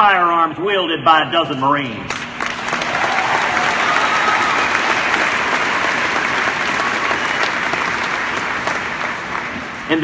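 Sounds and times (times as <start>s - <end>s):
crowd applauding: 2.4s - 10.0s.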